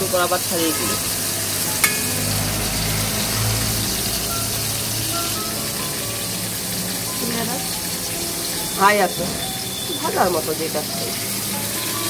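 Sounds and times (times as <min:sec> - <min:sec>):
food sizzling in oil: 0:00.0 - 0:12.0
low hum: 0:01.6 - 0:06.9.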